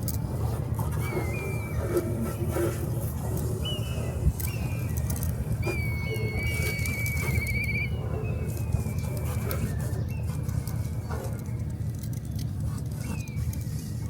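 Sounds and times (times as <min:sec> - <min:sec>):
high thin whistled calls: 0:01.0 - 0:02.6, 0:03.4 - 0:10.4.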